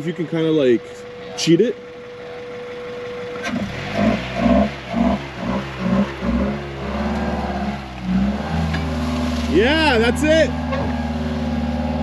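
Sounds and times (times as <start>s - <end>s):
vehicle engine revving: 3.3s - 12.0s.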